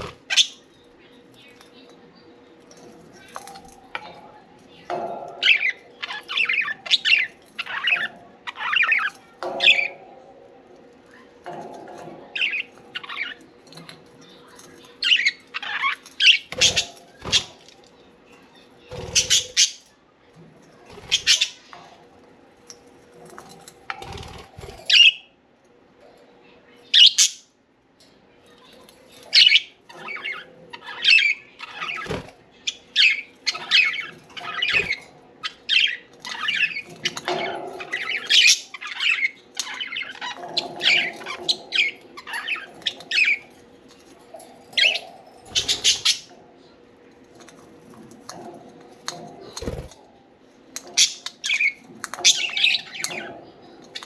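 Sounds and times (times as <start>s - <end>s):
budgerigars chirping and squawking: 0.0s - 1.9s, 4.9s - 10.0s, 11.5s - 17.7s, 18.8s - 19.8s, 20.9s - 21.9s, 24.0s - 25.3s, 27.0s - 27.4s, 29.1s - 46.4s, 50.8s - 54.0s.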